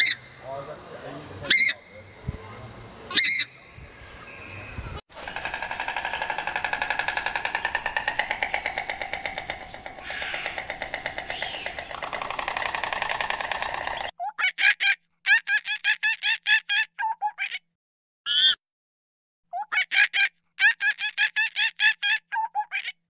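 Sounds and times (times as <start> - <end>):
animal pulsing trill: 5.1 - 14.1
short animal calls: 5.2 - 14.1.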